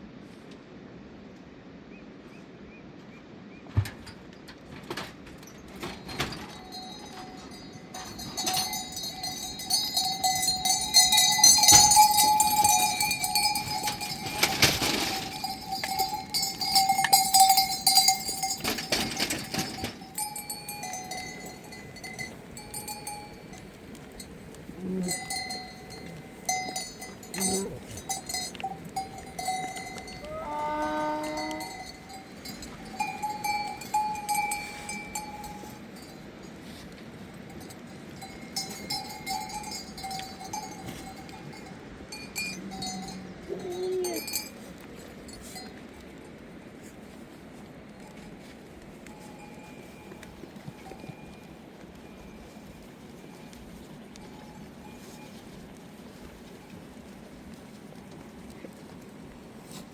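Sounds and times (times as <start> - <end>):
animal bells clanking: 4.8 - 47.1, 47.7 - 59.9
sheep bleat: 30.0 - 31.8.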